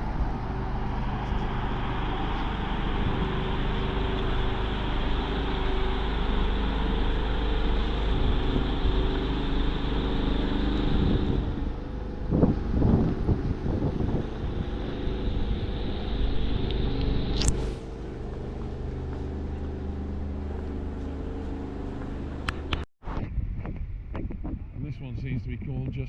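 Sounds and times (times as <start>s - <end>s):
vehicle engine hum: 0.0s - 22.9s
road hiss: 14.7s - 22.8s.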